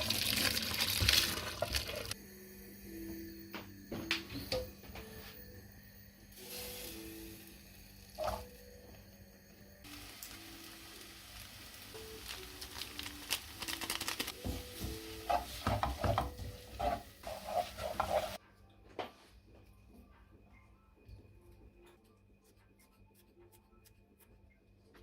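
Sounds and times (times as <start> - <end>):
food sizzling in a hot pan: 0.0 - 2.2, 6.3 - 8.5, 9.8 - 18.4
utensil scraping a pan: 15.2 - 18.4.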